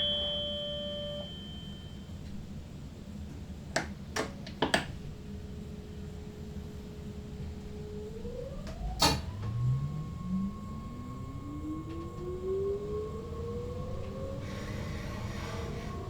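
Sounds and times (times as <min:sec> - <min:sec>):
train motors whining: 0:05.8 - 0:16.0.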